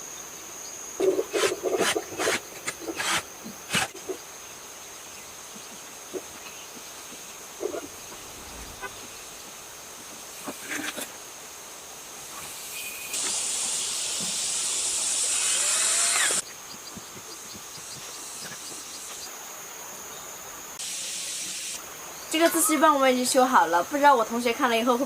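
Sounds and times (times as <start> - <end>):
pressurised spray hissing: 7.4 - 16.4, 20.8 - 21.8.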